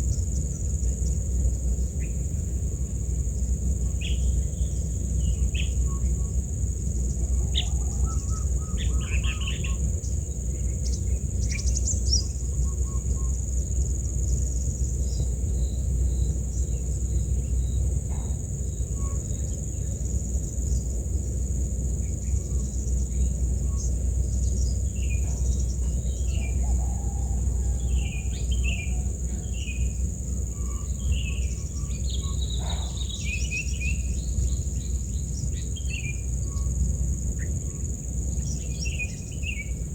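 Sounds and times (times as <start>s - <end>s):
insects buzzing: 0.0s - 39.9s
bird chirps: 22.4s - 36.7s.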